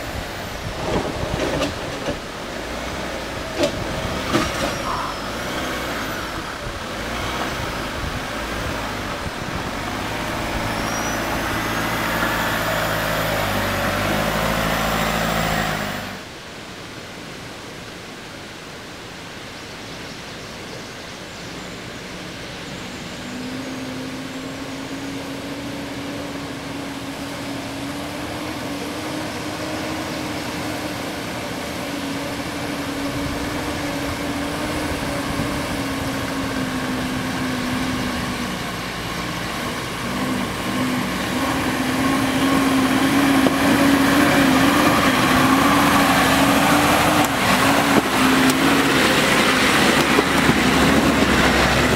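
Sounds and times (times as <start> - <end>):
engine droning under load: 0.0 - 51.9.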